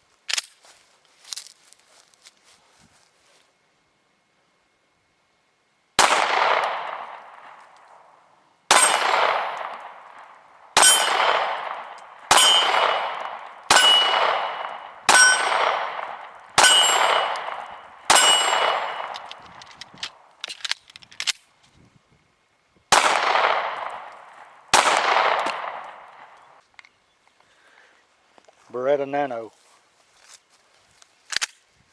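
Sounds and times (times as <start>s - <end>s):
pistol shots: 6.0s - 7.6s, 8.7s - 20.1s, 22.9s - 26.4s
small gun clicks: 19.0s - 21.5s, 31.3s - 31.6s.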